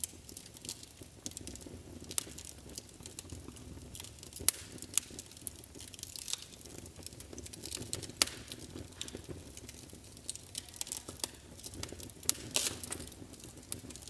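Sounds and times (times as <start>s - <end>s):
fire crackling and popping: 0.0s - 14.0s
low rumble of flames: 0.0s - 14.0s.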